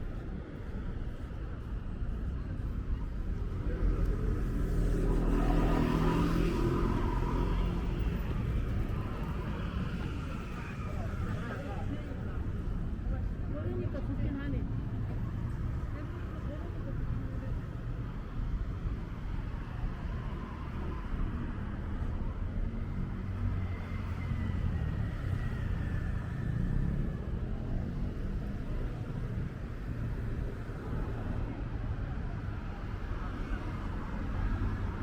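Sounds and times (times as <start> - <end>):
passing cars rumble: 3.4 - 19.0.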